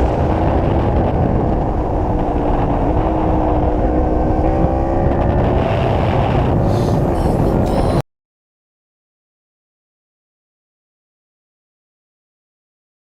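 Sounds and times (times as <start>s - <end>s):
motorcycle engine accelerating: 0.0s - 8.0s
wind rumble on microphone: 0.0s - 8.0s.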